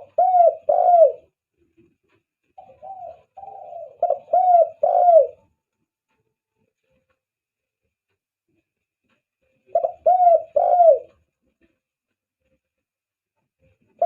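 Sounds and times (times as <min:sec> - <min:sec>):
dove cooing: 0:00.0 - 0:01.4, 0:02.6 - 0:05.5, 0:09.7 - 0:11.2.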